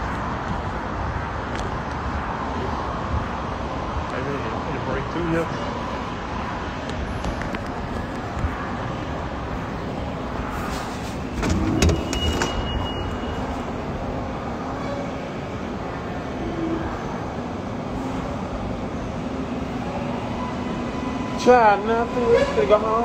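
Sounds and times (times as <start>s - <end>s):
vehicle rumbling: 0.0s - 23.0s
brief high beep: 12.0s - 13.6s.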